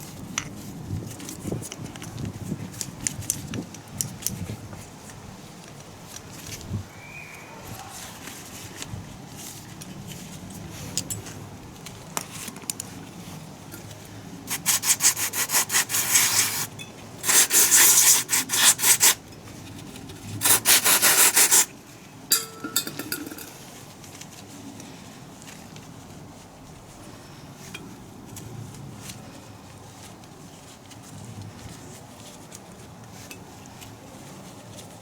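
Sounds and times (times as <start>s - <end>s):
hand rubbing strokes: 14.5s - 19.2s, 20.4s - 21.7s.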